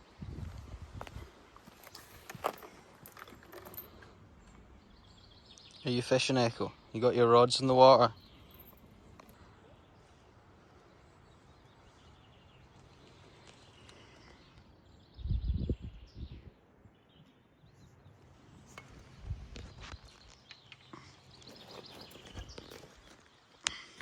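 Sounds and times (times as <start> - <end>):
low rumble on microphone: 0.0 - 1.3, 15.1 - 16.6.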